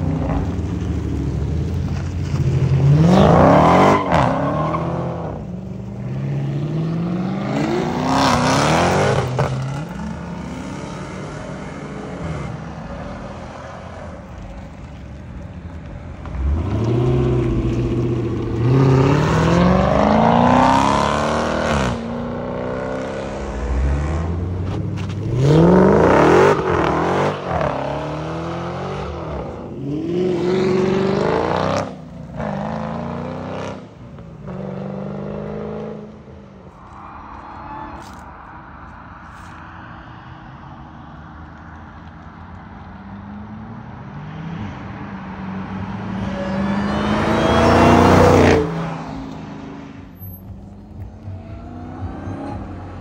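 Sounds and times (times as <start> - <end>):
car engine accelerating: 45.4 - 53.0.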